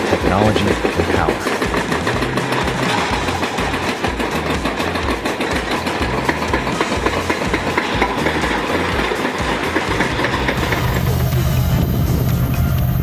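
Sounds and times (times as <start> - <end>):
excavator engine running: 0.0 - 13.0
hydraulic breaker hammering rock: 0.0 - 13.0.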